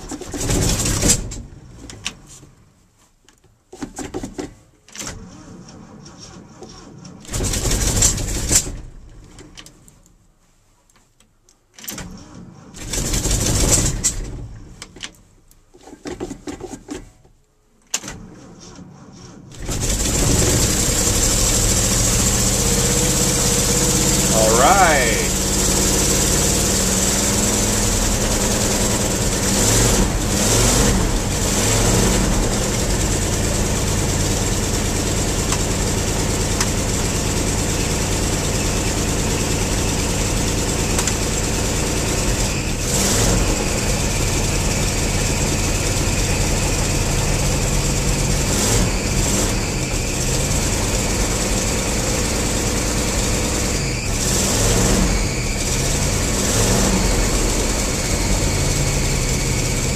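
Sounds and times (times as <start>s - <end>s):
truck engine running and revving: 19.6s - 59.9s.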